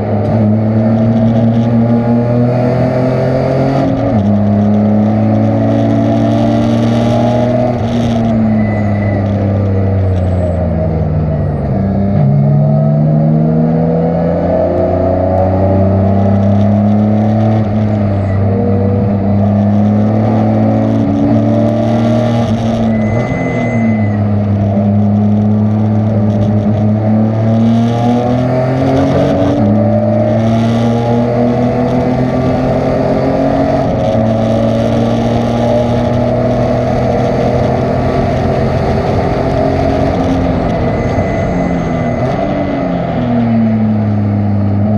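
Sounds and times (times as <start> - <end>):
race car engine at speed: 0.0 - 44.9.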